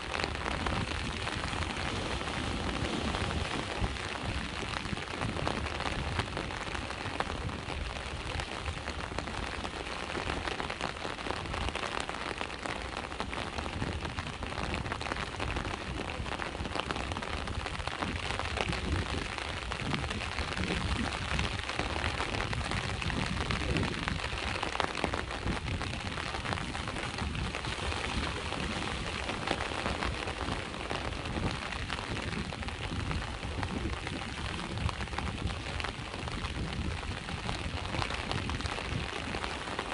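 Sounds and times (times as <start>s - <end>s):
sea waves washing: 0.0s - 13.1s, 24.0s - 39.9s
steady rain falling: 0.0s - 39.9s.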